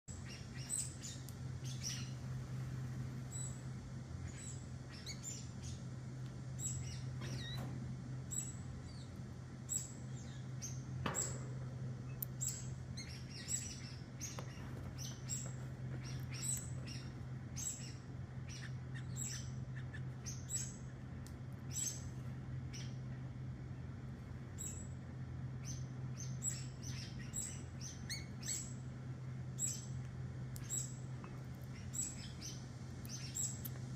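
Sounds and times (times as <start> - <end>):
bird chirping high calls: 0.1 - 2.2, 4.2 - 5.8, 6.6 - 7.7, 12.0 - 20.9, 21.6 - 22.1, 25.6 - 28.8, 29.6 - 30.0, 31.7 - 33.7
steady low hum: 0.1 - 33.9.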